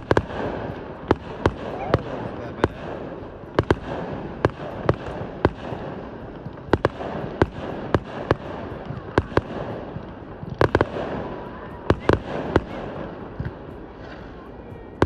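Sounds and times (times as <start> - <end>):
fireworks bangs: 0.0 - 15.0
fireworks crackle and rumble: 0.0 - 15.0.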